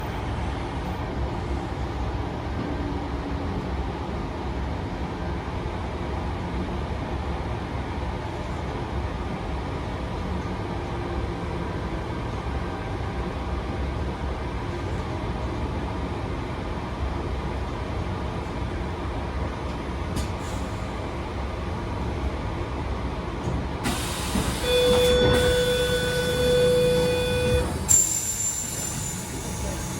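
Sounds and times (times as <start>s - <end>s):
train rumbling on rails: 0.0s - 29.9s
loud held tone: 24.6s - 29.1s.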